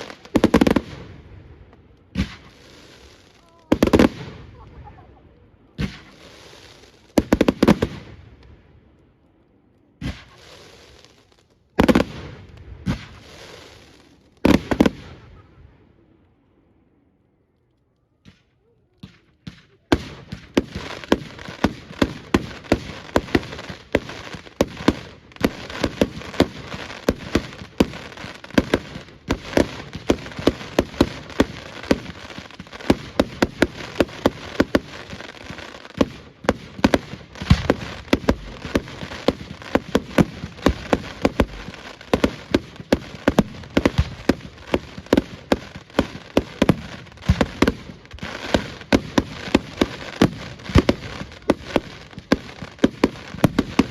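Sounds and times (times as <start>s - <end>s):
fireworks bangs and crackles: 0.0s - 16.4s, 18.1s - 53.9s
steady hiss: 10.2s - 11.3s, 12.6s - 14.3s.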